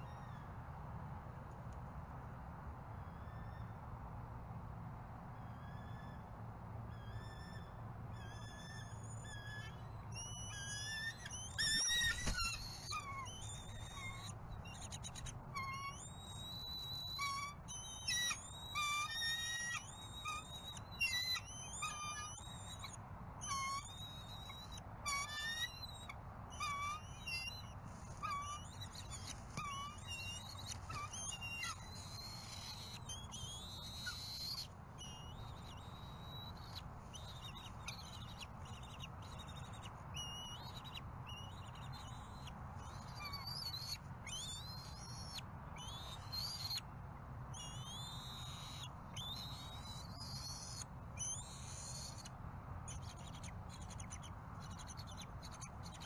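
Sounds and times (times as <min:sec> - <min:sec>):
birds chittering: 0:08.2 - 0:46.8, 0:52.9 - 0:56.0.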